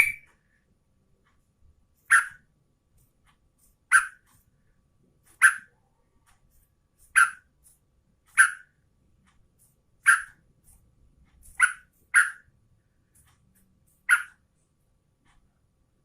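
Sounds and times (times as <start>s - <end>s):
bird giving harsh calls: 0.0s - 0.3s, 2.1s - 2.4s, 3.9s - 4.2s, 5.4s - 5.7s, 8.4s - 8.7s, 11.6s - 12.4s.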